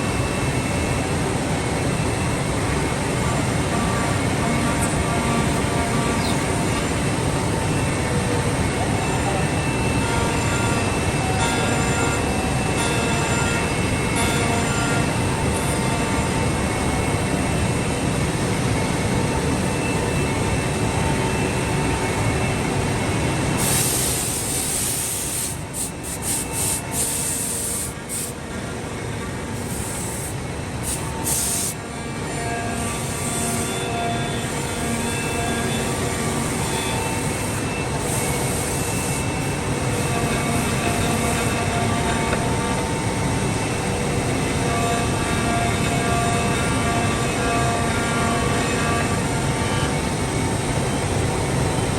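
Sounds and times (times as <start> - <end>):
machine running with faint whine: 0.0 - 51.9
loud hiss: 23.6 - 28.4, 29.6 - 31.8.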